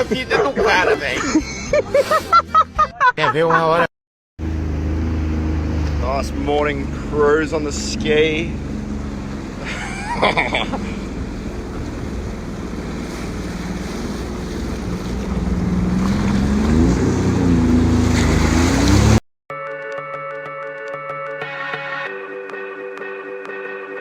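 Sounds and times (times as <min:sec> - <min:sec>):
jet ski engine running: 0:04.4 - 0:19.2
water noise: 0:04.5 - 0:19.2.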